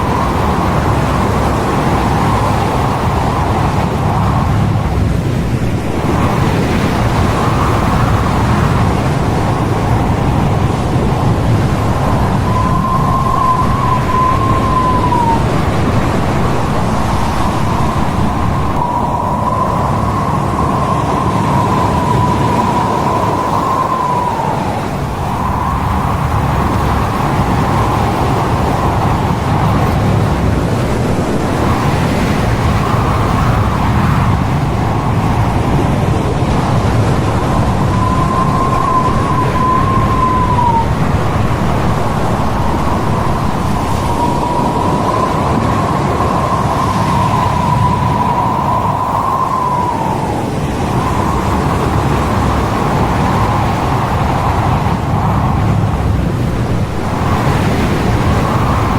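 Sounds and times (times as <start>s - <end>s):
heavy sea: 0.0s - 58.9s
storm wind rushing: 0.0s - 58.9s
high wavering whistle: 11.0s - 29.3s, 36.7s - 51.9s.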